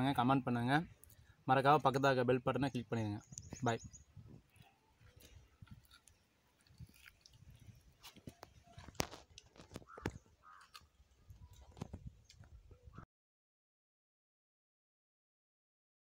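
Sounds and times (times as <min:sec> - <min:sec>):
faint chewing with crunches: 0:00.9 - 0:01.4, 0:04.2 - 0:12.9.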